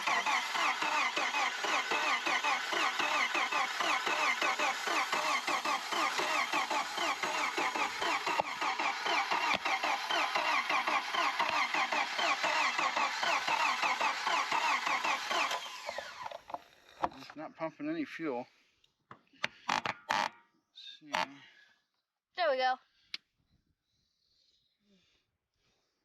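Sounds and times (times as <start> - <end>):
engine cranking on starter: 0.0 - 17.4.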